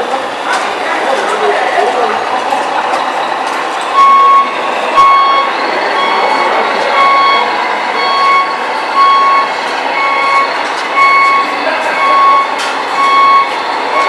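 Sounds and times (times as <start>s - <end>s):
reversing beeper: 3.1s - 14.0s.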